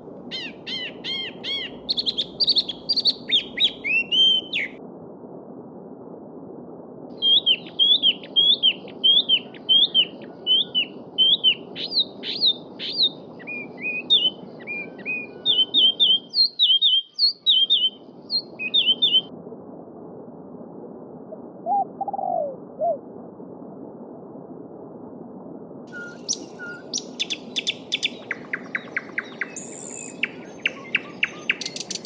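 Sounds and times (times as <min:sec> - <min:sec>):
bird giving low calls: 0:00.3 - 0:04.7
songbird chirping: 0:00.3 - 0:04.8, 0:07.2 - 0:19.3, 0:25.9 - 0:32.0.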